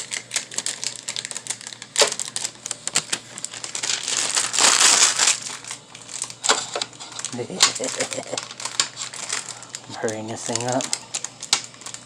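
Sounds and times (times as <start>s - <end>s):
plastic crinkling: 0.0s - 12.0s.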